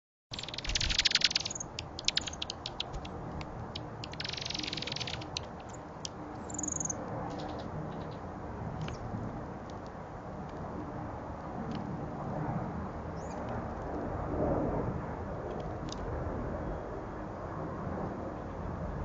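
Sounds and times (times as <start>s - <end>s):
bird trilling: 0.3s - 5.8s, 6.4s - 8.2s
bird chips: 0.3s - 8.2s.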